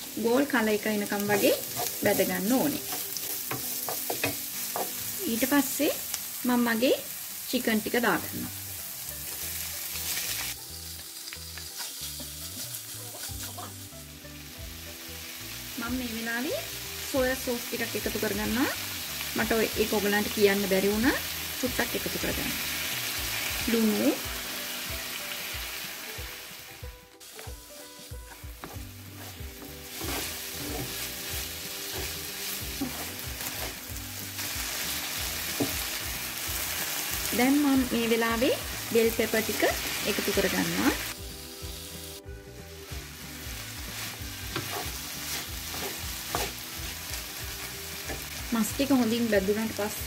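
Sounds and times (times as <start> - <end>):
chicken sizzling in hot oil: 0.0 - 50.0
wooden spatula scraping pan: 28.3 - 33.8, 44.5 - 46.6.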